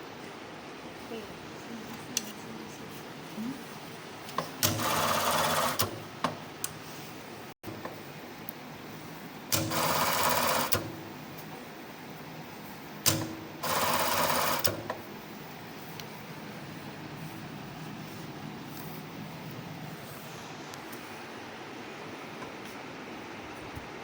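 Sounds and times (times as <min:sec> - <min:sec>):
sewing machine running: 0:04.6 - 0:06.1, 0:09.5 - 0:11.1, 0:13.0 - 0:14.9.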